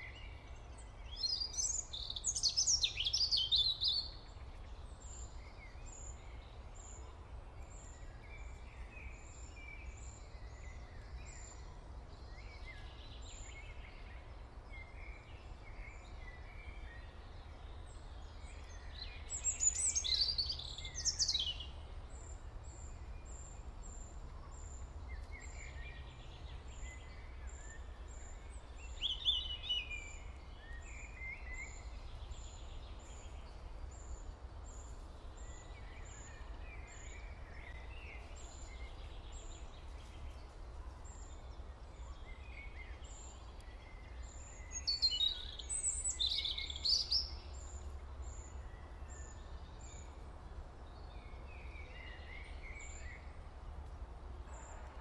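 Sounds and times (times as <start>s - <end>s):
warbling birdsong: 12.4s - 23.6s, 24.6s - 50.2s.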